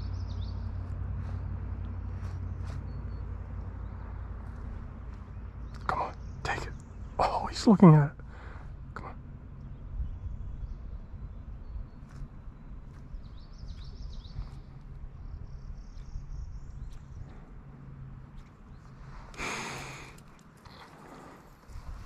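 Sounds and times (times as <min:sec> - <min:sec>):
low steady rumble: 0:00.0 - 0:22.0
small birds chirping: 0:00.0 - 0:22.0
faint clicks: 0:19.3 - 0:21.6.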